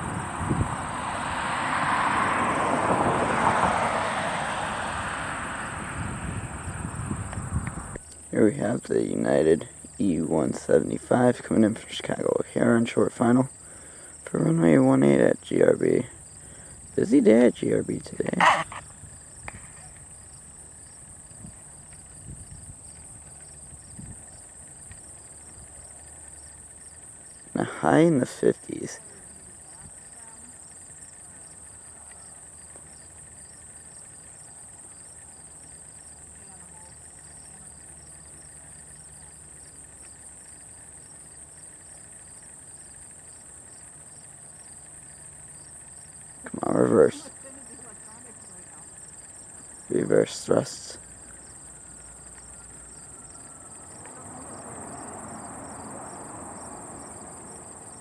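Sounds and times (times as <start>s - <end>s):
distant jet engine rushing: 0.0s - 12.6s
crickets trilling: 0.0s - 58.0s
insect chirp: 0.0s - 58.0s.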